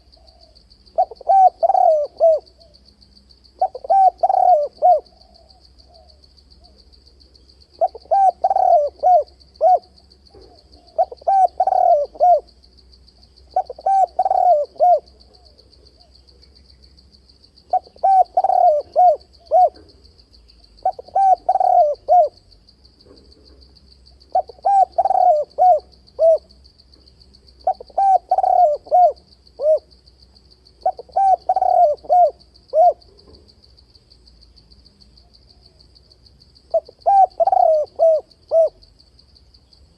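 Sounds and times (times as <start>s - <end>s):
dove cooing: 0.0s - 2.8s, 3.6s - 6.8s, 7.7s - 12.5s, 13.5s - 16.2s, 17.7s - 20.0s, 20.8s - 22.4s, 24.3s - 26.6s, 27.6s - 30.0s, 30.8s - 33.4s, 36.7s - 38.9s.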